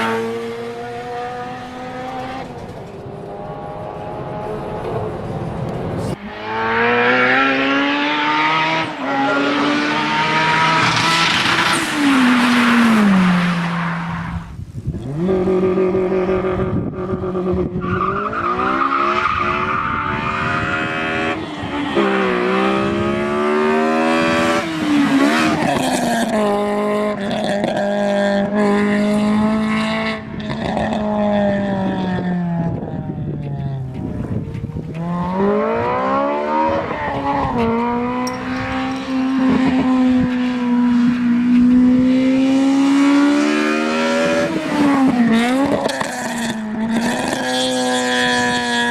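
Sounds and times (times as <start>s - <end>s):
engine revving through gears: 6.2s - 13.1s.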